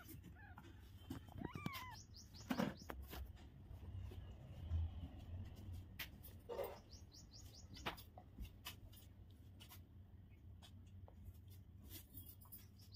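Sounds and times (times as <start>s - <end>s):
high falling bird chirps: 1.3s - 3.2s, 6.6s - 8.0s.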